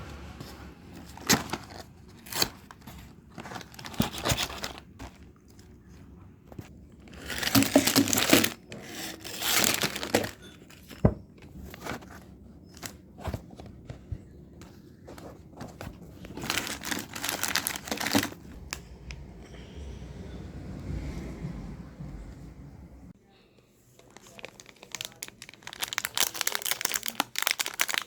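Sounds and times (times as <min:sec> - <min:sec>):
plastic packaging crinkling and tearing: 0:01.0 - 0:13.5, 0:15.2 - 0:18.8, 0:24.0 - 0:28.0.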